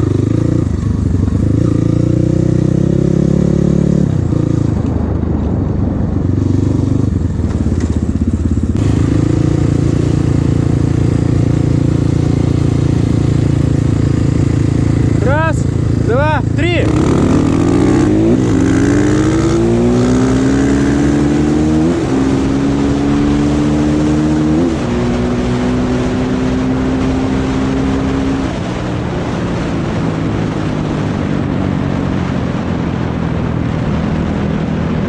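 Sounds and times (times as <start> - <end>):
dirt bike engines accelerating: 8.6 - 31.6.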